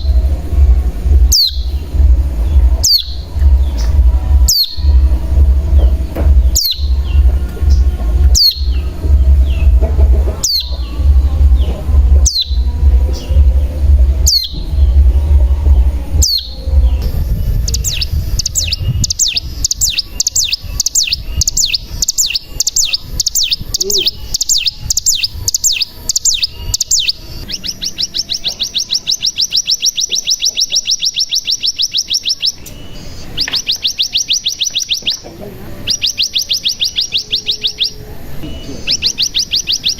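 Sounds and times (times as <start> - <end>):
low rumble: 0.0 - 28.6
fast buzzing trill: 0.0 - 29.9
bird fast high trill: 15.9 - 35.2.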